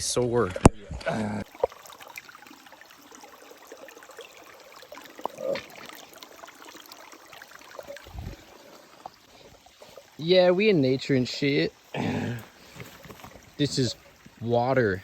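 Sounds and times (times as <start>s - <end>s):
mountain stream rushing: 1.5s - 15.0s.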